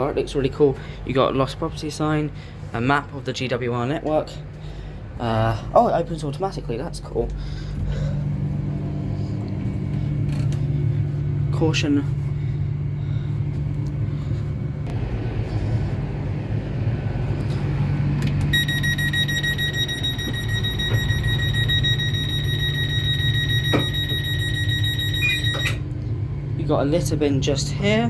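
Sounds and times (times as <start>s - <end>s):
standing train low hum: 0.0s - 28.0s
pulsing electronic warning tone: 18.5s - 25.9s.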